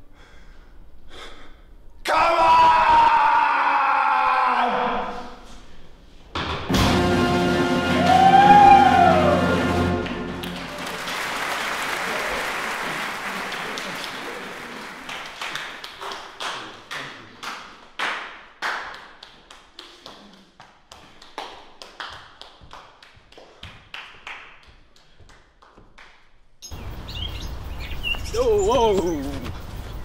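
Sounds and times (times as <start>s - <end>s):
audience applause: 7.6s - 18.8s.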